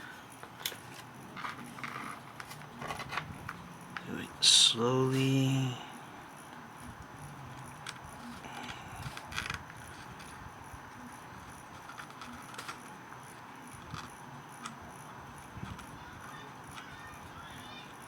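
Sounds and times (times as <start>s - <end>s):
faint steady hiss: 0.0s - 18.0s
small tools clicking and tapping: 11.7s - 12.9s.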